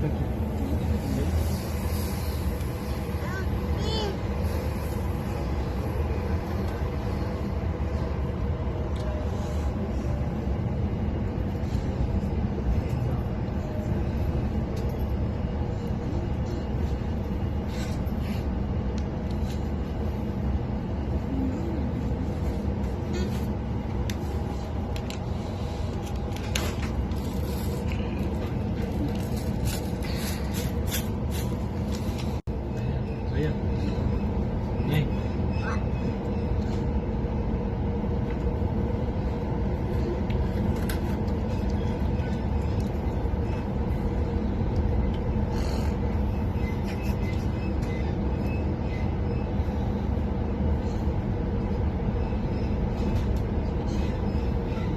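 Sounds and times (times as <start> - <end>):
train carriage rumble: 0.0 - 54.9
wheels clicking and squeaking: 45.4 - 49.8.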